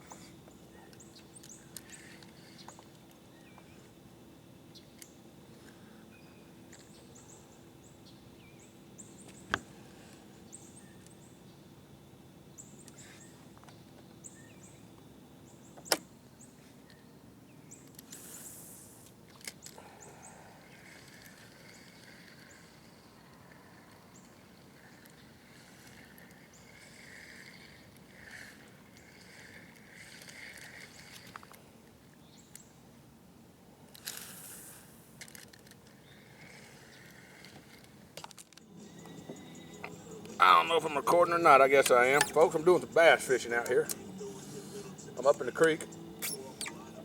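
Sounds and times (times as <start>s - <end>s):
brief hiss: 34.1s - 35.1s
faint high chirping calls: 38.7s - 47.0s.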